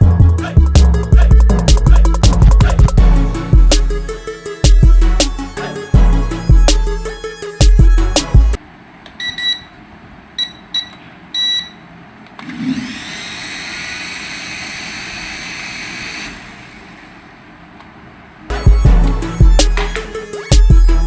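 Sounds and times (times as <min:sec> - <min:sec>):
short electronic beeps: 0:09.2 - 0:09.7, 0:10.4 - 0:11.8.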